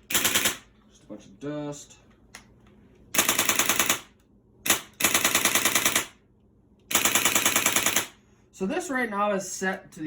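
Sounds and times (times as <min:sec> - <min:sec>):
airsoft gun dry-firing bursts: 0:00.0 - 0:00.7, 0:03.2 - 0:06.2, 0:06.9 - 0:08.2.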